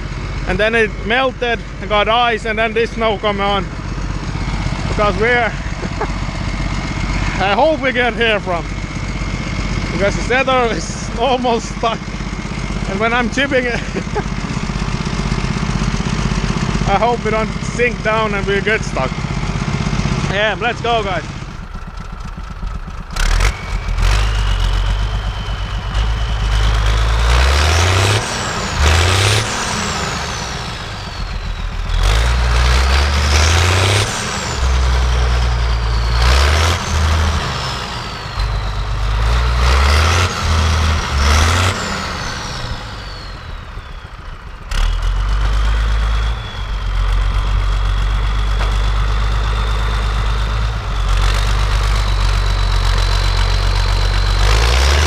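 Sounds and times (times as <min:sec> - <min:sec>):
tractor diesel engine revving: 0:00.0 - 0:55.0
turbo whine: 0:00.0 - 0:55.0.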